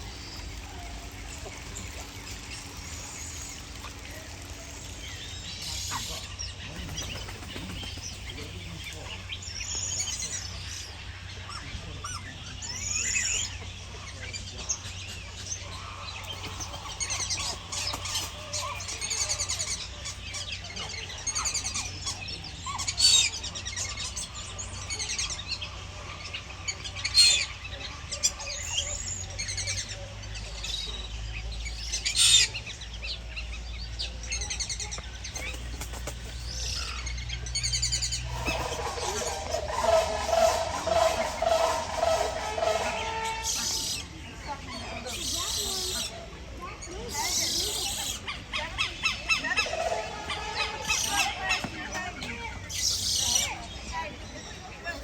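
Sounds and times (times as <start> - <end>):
birds chirping and calling: 0.0 - 55.0.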